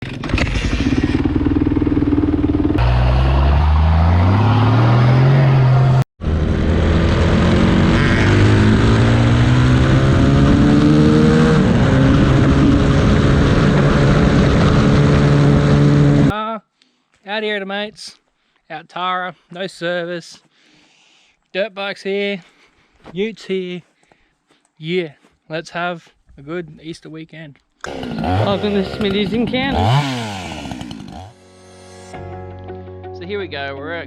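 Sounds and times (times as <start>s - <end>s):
vehicle engine revving: 0.1s - 16.3s, 27.9s - 31.4s.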